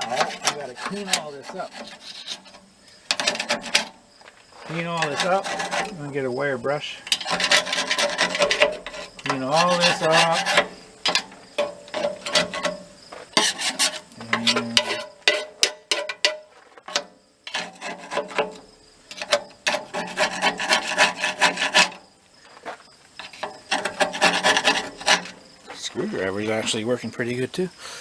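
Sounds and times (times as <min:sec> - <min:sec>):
screwdriver scraping gasket residue: 0:00.0 - 0:04.0, 0:04.6 - 0:06.1, 0:07.0 - 0:12.8, 0:13.4 - 0:16.3, 0:16.9 - 0:22.0, 0:23.2 - 0:25.4.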